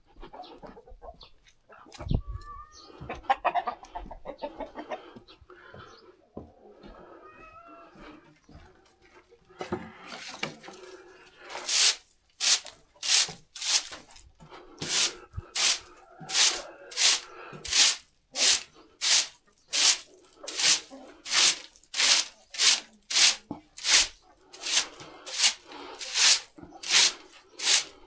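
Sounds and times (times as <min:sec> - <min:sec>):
quiet scuffs: 0:11.5 - 0:14.0, 0:14.8 - 0:28.0
hand tool scraping floor: 0:11.5 - 0:14.1, 0:14.8 - 0:28.0.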